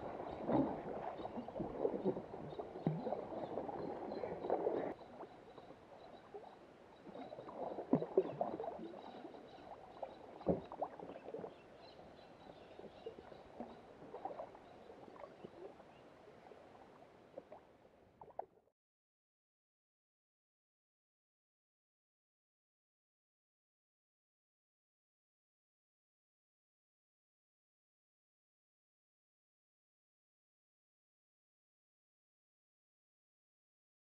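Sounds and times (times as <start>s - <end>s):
water splashing against kayak: 0.0s - 18.5s.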